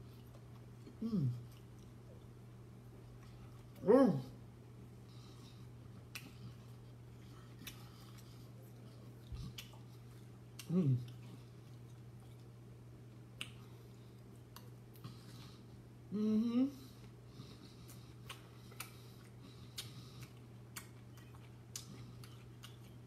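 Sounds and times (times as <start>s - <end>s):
person chewing with mouth smacks: 0.0s - 3.8s, 5.3s - 15.8s, 16.9s - 23.0s
low steady hum: 0.0s - 23.0s
person humming mm: 1.0s - 1.5s, 10.6s - 11.2s, 16.1s - 17.0s.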